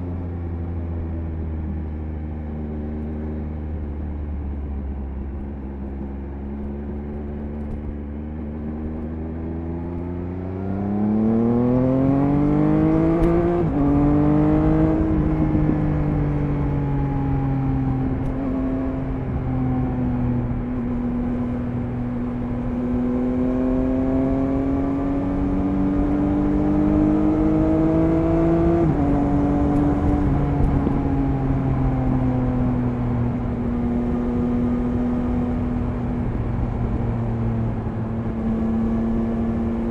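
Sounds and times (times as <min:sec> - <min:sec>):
motorcycle engine accelerating: 0:00.0 - 0:39.9
wind noise: 0:11.5 - 0:39.9.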